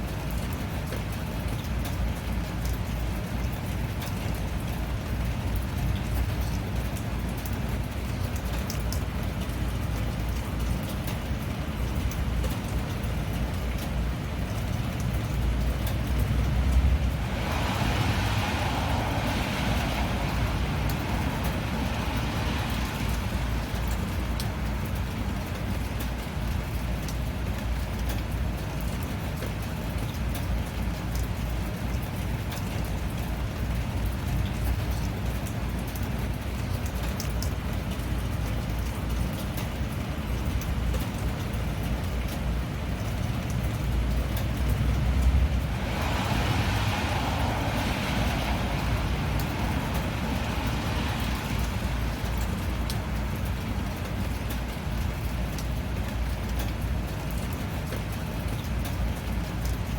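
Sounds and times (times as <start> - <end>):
steady rain falling: 0.0 - 59.9
rushing hiss: 45.6 - 53.1.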